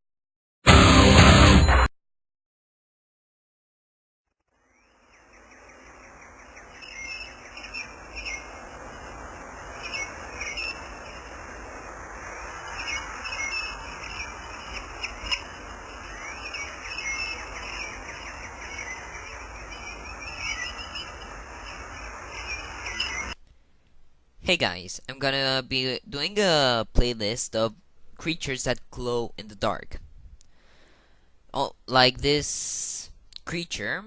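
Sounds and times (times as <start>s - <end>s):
birds chirping: 4.6s - 23.4s
insect-like hiss: 4.6s - 23.4s.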